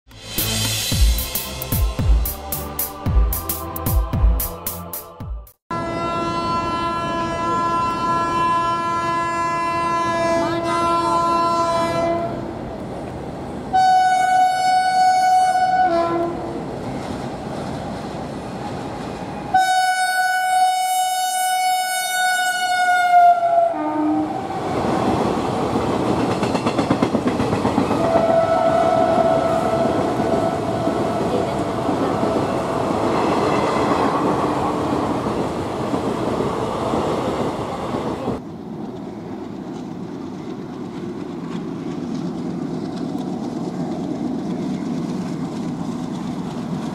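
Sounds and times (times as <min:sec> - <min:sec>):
locomotive horn blasts: 0:05.7 - 0:12.4, 0:13.7 - 0:16.4, 0:19.5 - 0:24.4, 0:28.0 - 0:30.8.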